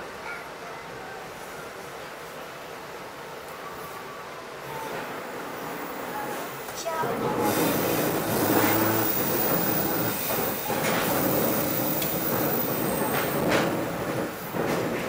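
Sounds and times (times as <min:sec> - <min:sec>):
train wheels rumbling on rails: 0:04.7 - 0:15.0
wheels clacking over rail joints: 0:05.0 - 0:15.0.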